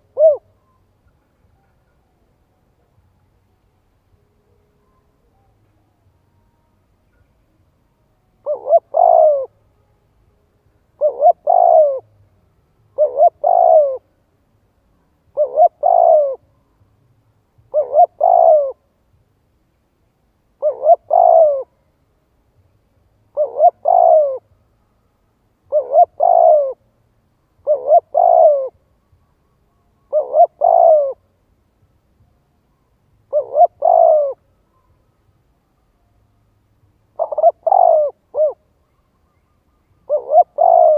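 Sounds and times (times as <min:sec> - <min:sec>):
dove cooing: 0:00.0 - 0:02.5, 0:08.4 - 0:09.6, 0:11.0 - 0:12.1, 0:13.0 - 0:14.1, 0:15.3 - 0:16.4, 0:17.7 - 0:18.8, 0:20.6 - 0:21.8, 0:23.3 - 0:24.5, 0:25.7 - 0:26.8, 0:27.6 - 0:28.8, 0:30.1 - 0:31.3, 0:33.3 - 0:34.5, 0:37.1 - 0:38.8, 0:40.0 - 0:40.9.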